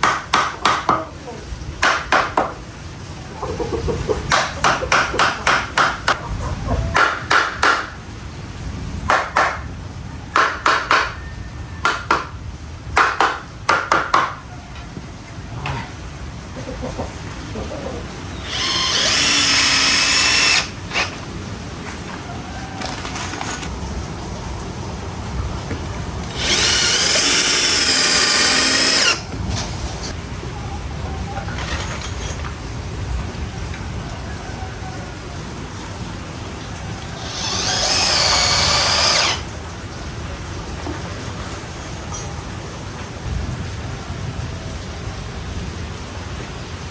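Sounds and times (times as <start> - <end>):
power drill whining: 18.4 - 21.2, 26.2 - 29.3, 37.2 - 39.5.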